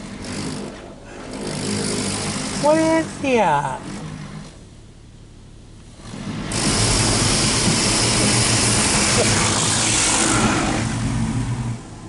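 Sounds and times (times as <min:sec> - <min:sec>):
low hum: 0:00.0 - 0:12.0
car wash rushing hiss: 0:05.9 - 0:12.0.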